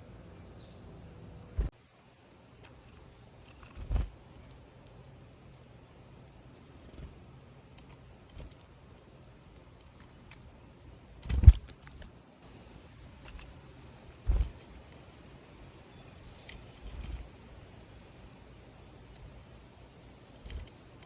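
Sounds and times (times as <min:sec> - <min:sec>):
small clicks: 0:07.0 - 0:10.4, 0:11.2 - 0:12.1, 0:16.3 - 0:17.3, 0:19.0 - 0:19.4, 0:20.3 - 0:21.0.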